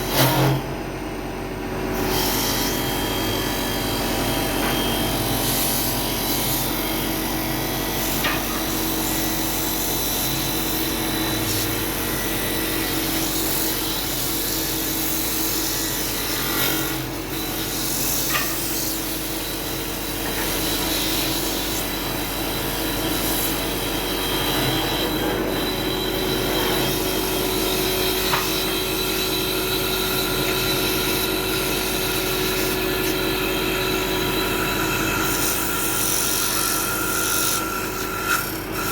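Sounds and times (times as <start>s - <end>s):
wood lathe running: 19.1s - 38.9s.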